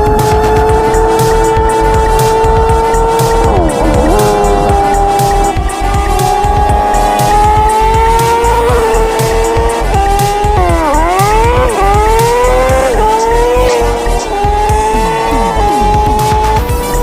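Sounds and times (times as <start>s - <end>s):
motorcycle engine revving high: 0.0s - 17.0s.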